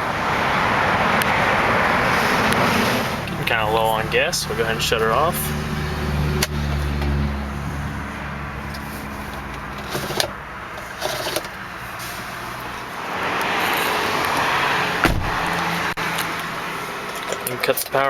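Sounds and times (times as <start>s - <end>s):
thump: 15.0s - 15.5s.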